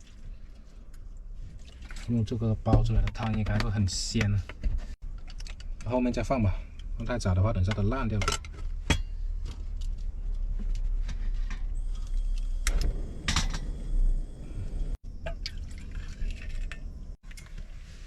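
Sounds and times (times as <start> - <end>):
water pouring and splashing: 1.4 - 2.3, 15.0 - 17.6.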